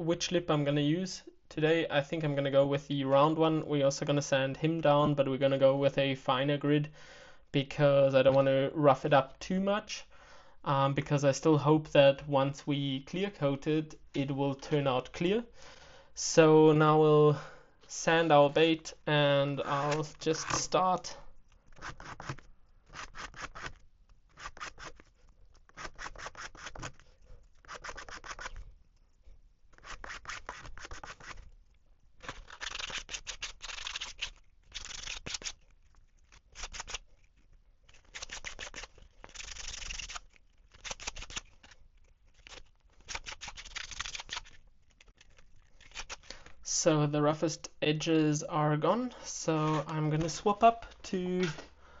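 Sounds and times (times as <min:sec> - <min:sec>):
sandpaper rubbing on plastic: 0:21.7 - 0:28.6, 0:29.7 - 0:31.5, 0:32.2 - 0:37.2, 0:37.9 - 0:46.3.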